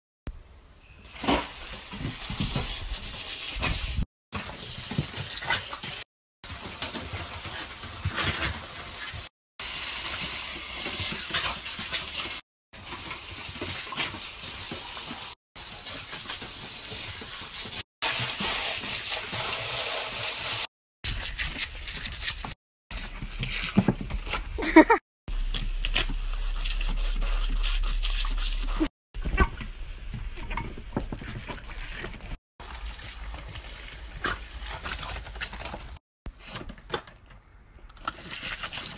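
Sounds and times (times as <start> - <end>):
water spraying from garden hose: 1.0 - 22.5, 24.7 - 28.9, 31.5 - 34.9, 38.0 - 38.9.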